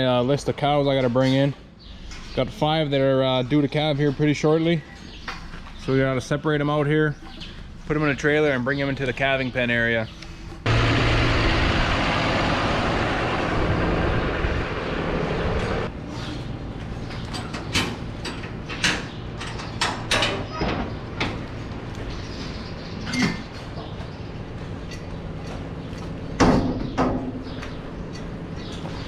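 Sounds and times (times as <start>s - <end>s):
vehicle engine running: 10.6s - 15.9s
metal clanks and knocks: 17.2s - 21.5s, 26.4s - 29.0s.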